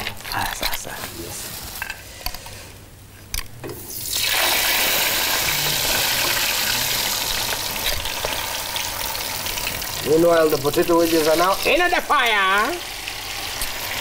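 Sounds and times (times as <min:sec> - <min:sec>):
potatoes sizzling in hot oil: 0:04.0 - 0:14.0.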